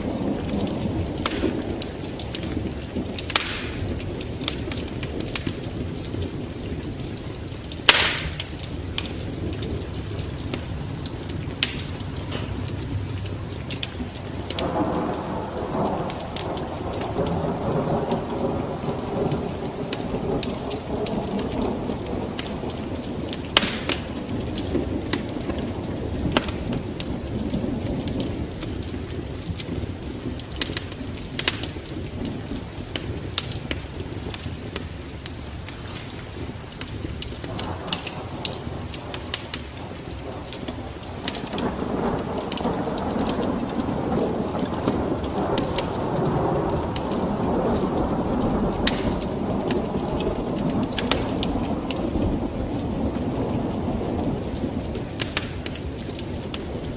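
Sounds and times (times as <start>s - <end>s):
wood fire crackling: 0.0s - 56.9s
sharp pops: 1.2s - 1.7s, 3.3s - 4.1s, 7.8s - 9.1s, 23.6s - 24.2s, 48.8s - 49.3s.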